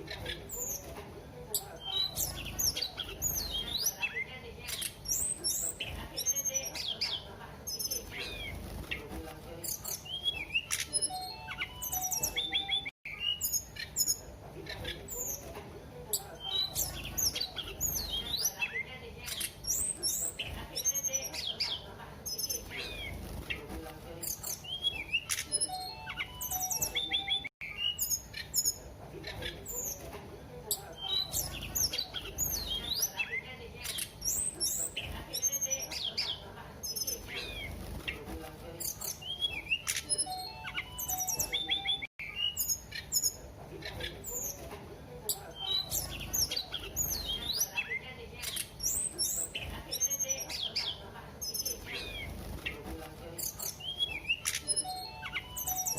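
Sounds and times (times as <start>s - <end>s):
songbird whistling song: 1.6s - 15.5s, 16.1s - 23.6s, 24.2s - 30.1s, 38.8s - 44.6s, 53.4s - 55.9s.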